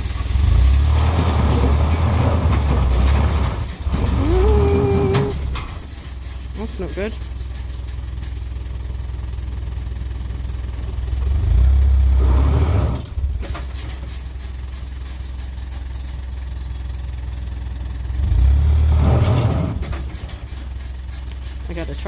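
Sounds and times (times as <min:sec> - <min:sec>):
diesel truck engine revving: 0:00.0 - 0:07.4, 0:10.0 - 0:14.1, 0:17.0 - 0:22.0.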